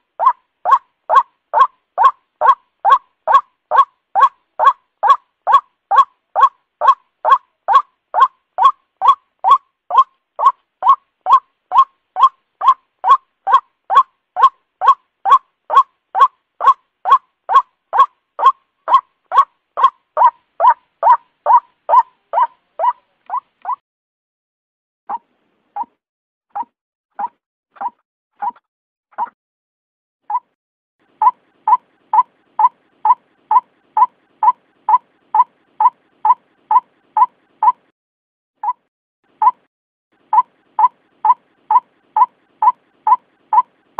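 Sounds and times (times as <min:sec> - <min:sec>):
waterhen call: 0:00.2 - 0:23.8.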